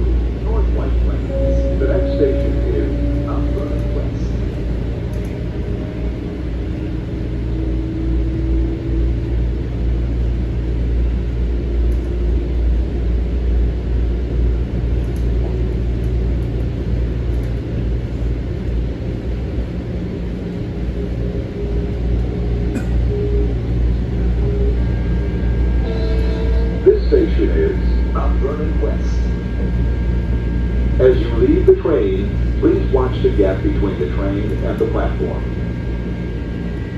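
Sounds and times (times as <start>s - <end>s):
train wheels rumbling on track: 0.0s - 36.9s
traction motor whine: 1.0s - 8.9s, 20.9s - 36.9s.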